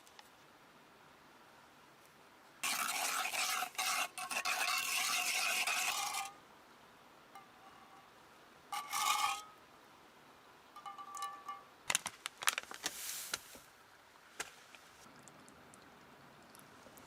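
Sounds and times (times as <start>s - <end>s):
rasping scraping: 2.6s - 6.3s, 8.8s - 9.4s.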